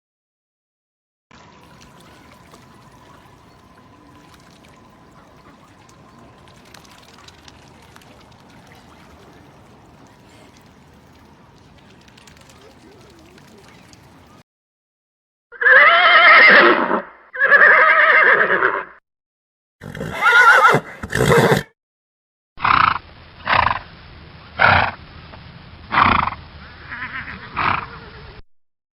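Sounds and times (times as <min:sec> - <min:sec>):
animal calling: 0:01.6 - 0:14.4.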